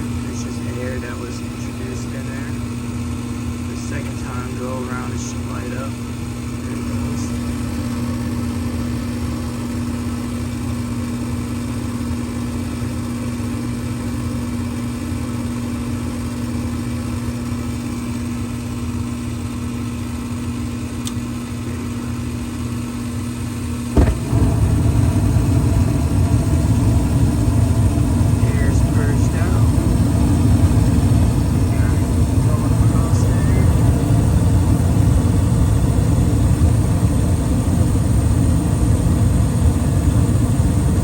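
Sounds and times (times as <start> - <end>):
furnace motor hum: 0.0 - 41.0
burner whoosh igniting: 23.9 - 35.8
burner flame rushing: 23.9 - 41.0.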